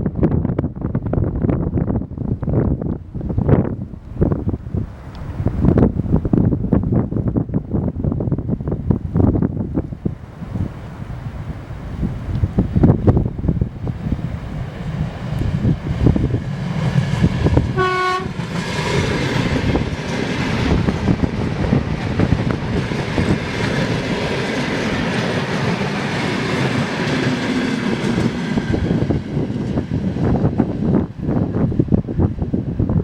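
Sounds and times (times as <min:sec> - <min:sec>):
wind on microphone: 0:00.0 - 0:33.0
train horn blast: 0:17.6 - 0:18.5.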